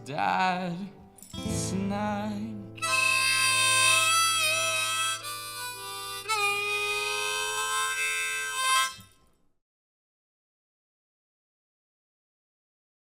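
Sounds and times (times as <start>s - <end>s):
harmonica bent notes: 2.7s - 9.2s.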